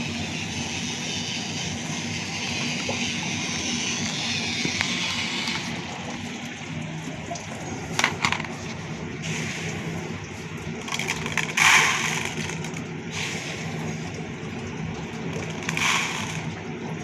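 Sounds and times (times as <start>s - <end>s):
small electric motor humming: 0.0s - 6.6s, 15.4s - 16.6s.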